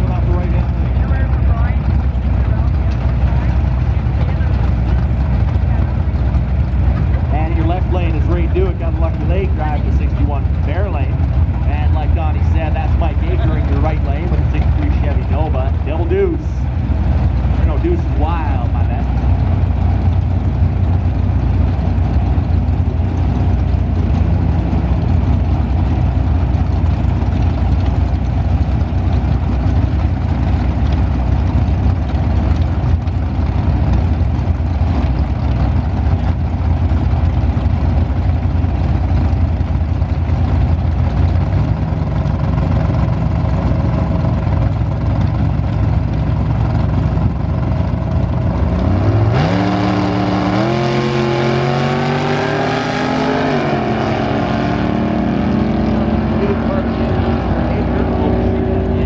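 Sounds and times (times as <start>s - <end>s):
race car engines idling: 0.0s - 59.0s
engine revving up: 48.6s - 59.0s.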